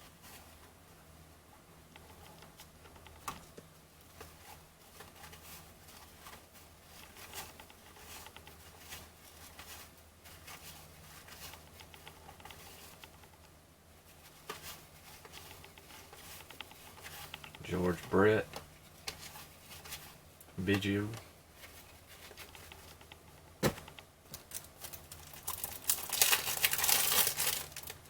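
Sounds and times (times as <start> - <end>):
faint low hum: 0.0 - 28.0
cards rustling and clicking: 14.4 - 28.0.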